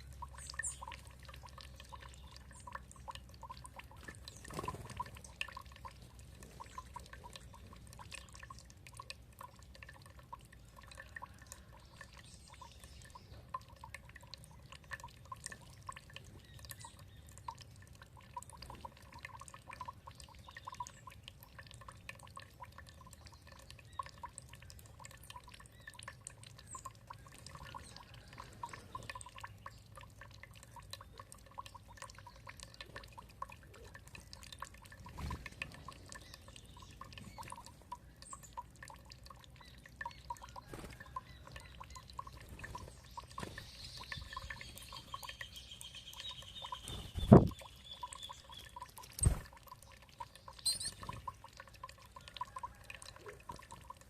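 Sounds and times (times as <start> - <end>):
water dripping and trickling: 0.0 - 54.0
high bird chirp: 43.1 - 49.4, 50.5 - 51.1
bird trilling: 50.6 - 51.0.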